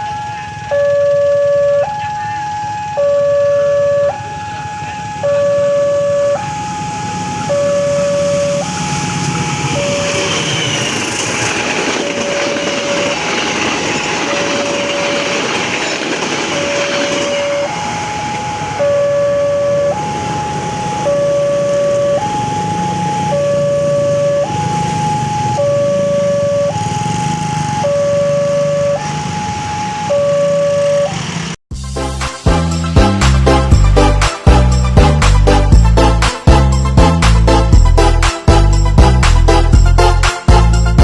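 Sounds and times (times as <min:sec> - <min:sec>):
level crossing two-tone alarm: 0:00.0 - 0:31.5
passing train rumble: 0:01.9 - 0:41.0.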